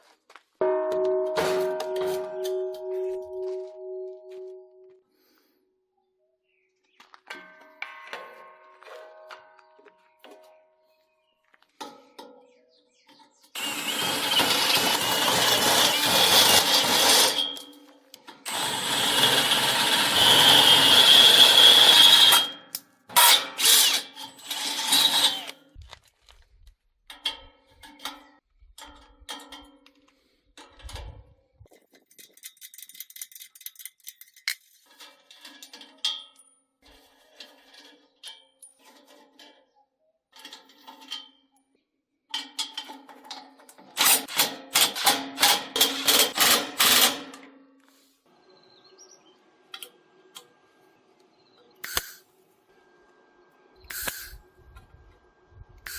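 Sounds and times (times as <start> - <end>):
power tool whining on steel: 13.6 - 25.6.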